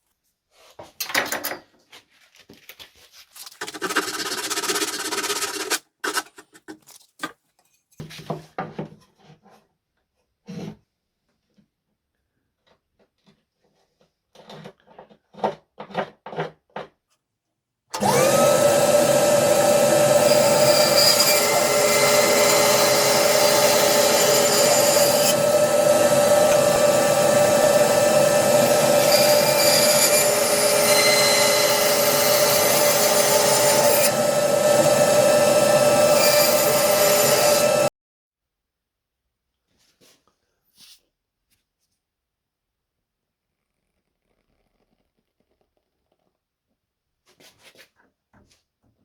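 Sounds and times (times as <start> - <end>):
electric power tool running: 18.0 - 37.9.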